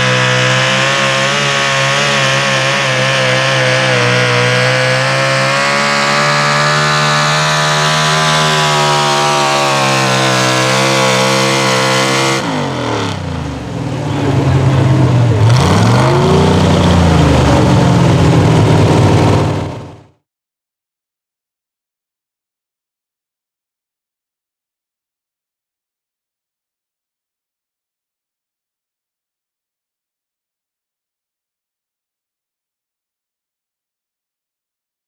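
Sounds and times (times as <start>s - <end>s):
truck engine revving hard: 0.0s - 20.2s.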